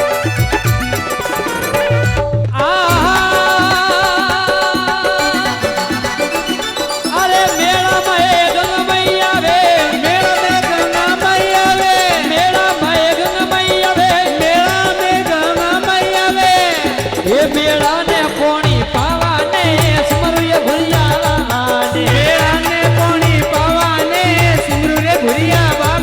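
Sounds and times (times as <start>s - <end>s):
folk melody sliding in pitch: 0.0s - 2.4s
steady repeating rhythm: 0.0s - 26.0s.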